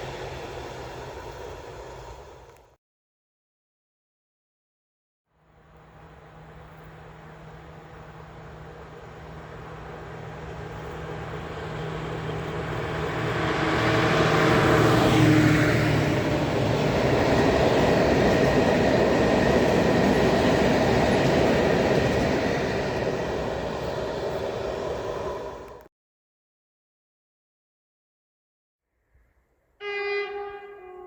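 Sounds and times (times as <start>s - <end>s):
train passing close by: 0.0s - 2.8s, 5.5s - 25.9s.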